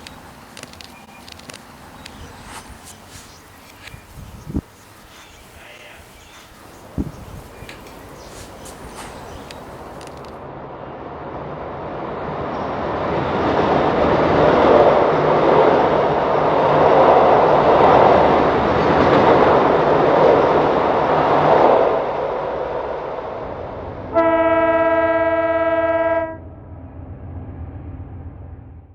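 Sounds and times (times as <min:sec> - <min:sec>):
model train rumbling on track: 0:00.0 - 0:28.6
train horn blast: 0:24.1 - 0:26.5.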